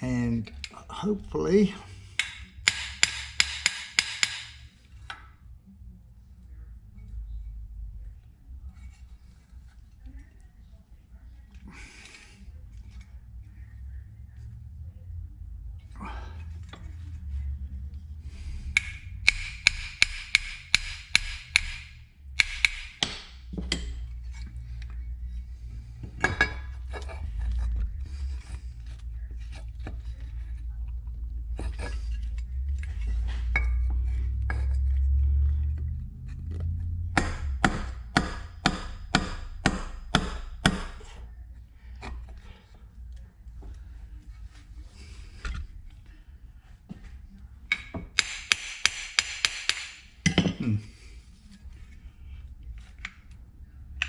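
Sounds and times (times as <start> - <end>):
hammer tapping a punch: 2.2 - 4.6, 18.8 - 23.9, 37.2 - 41.0, 48.2 - 50.0.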